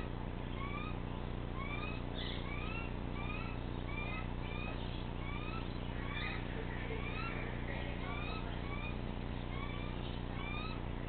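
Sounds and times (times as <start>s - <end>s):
steady low hum: 0.0s - 11.0s
bird whistling: 0.5s - 1.0s, 1.6s - 7.4s, 8.0s - 10.8s.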